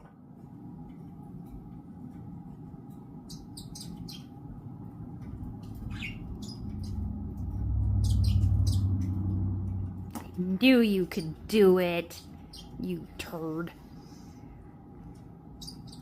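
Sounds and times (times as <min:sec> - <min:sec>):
budgerigar chirping: 0:03.3 - 0:04.3, 0:05.9 - 0:07.0, 0:08.0 - 0:09.0
low rumble: 0:04.6 - 0:11.5.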